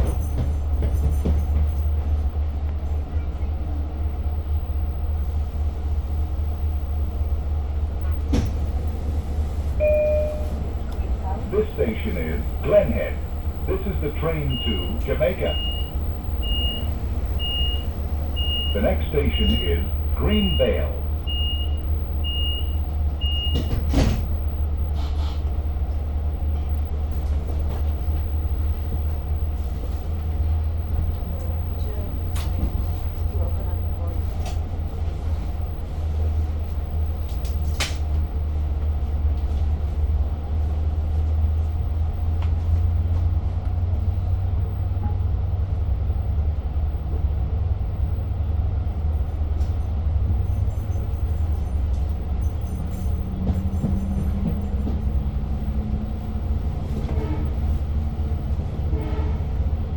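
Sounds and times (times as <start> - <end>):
train car rumble and hum: 0.0 - 59.9
train doors shutting thump: 8.0 - 8.8, 23.4 - 24.4
door-warning beeps: 9.8 - 10.7, 11.6 - 24.6.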